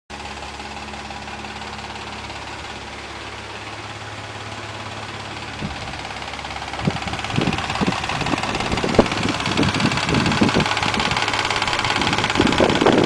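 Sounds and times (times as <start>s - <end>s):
car engine running with fast clatter: 0.1s - 13.0s.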